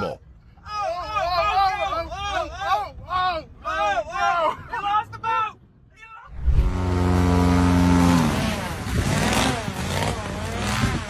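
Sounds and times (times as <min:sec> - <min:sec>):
vehicle engine revving: 0:06.3 - 0:10.9.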